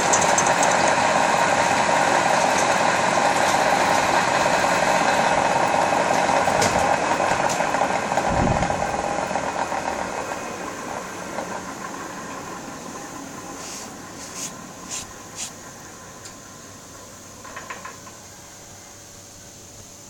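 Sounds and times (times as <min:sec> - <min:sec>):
milling machine running: 0:00.0 - 0:15.9.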